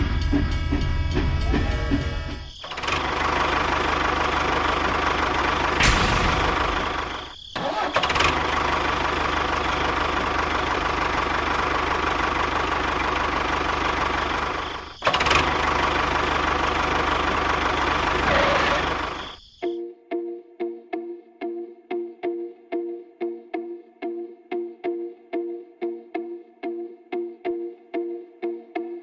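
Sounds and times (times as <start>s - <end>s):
motor buzzing drone: 18.0s - 19.3s.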